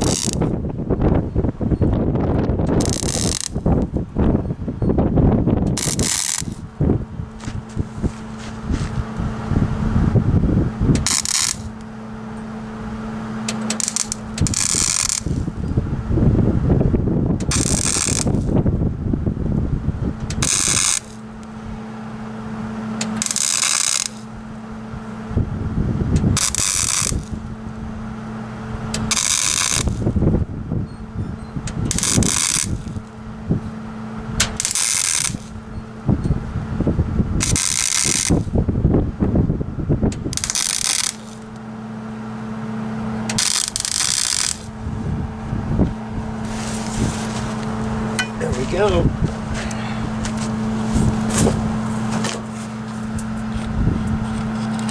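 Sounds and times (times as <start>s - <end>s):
crackling welding arc: 0.0s - 0.6s, 2.4s - 4.0s, 5.6s - 9.2s, 10.9s - 12.4s, 13.2s - 15.6s, 17.4s - 18.6s, 20.2s - 21.6s, 22.7s - 24.5s, 26.2s - 27.6s, 28.8s - 30.2s, 31.6s - 35.8s, 37.4s - 38.6s, 40.1s - 41.7s, 43.2s - 44.8s, 46.4s - 49.5s
steady welder hum: 0.0s - 54.9s.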